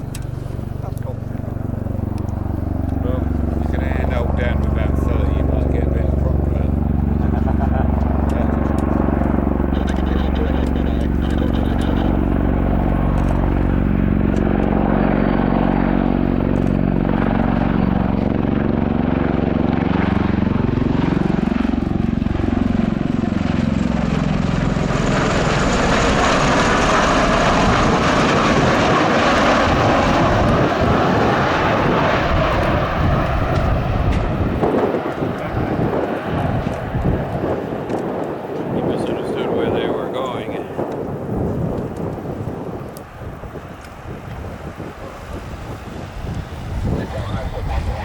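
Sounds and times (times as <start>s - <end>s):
turbine and rotor wash hiss: 0.0s - 18.3s, 42.0s - 48.0s.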